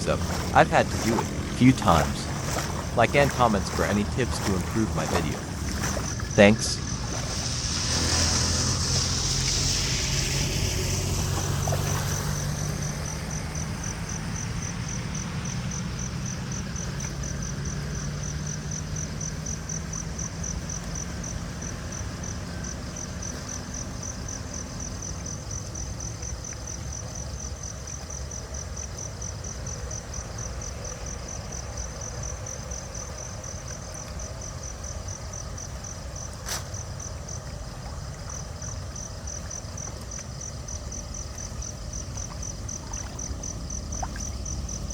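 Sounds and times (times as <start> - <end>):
low rumble: 0.0 - 12.0
insect chirping trill: 0.0 - 44.9.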